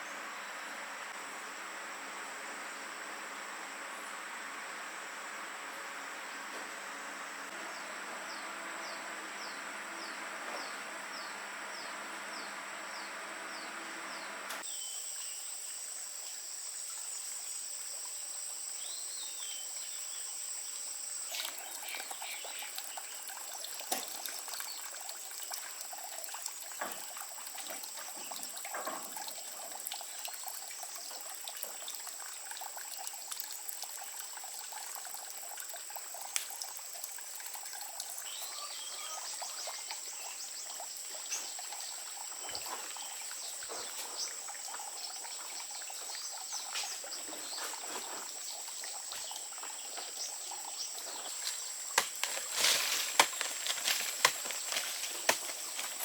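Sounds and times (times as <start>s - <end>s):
trickling crackling water: 19.8s - 56.0s.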